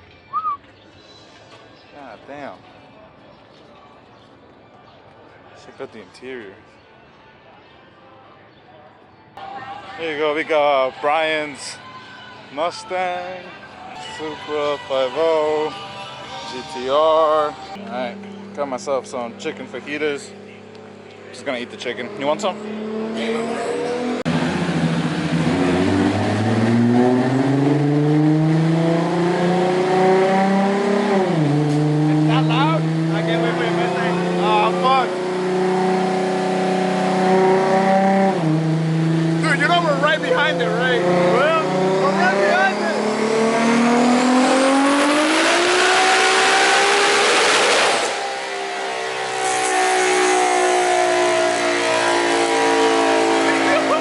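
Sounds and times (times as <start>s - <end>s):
car engine revving up: 18.6s - 54.0s.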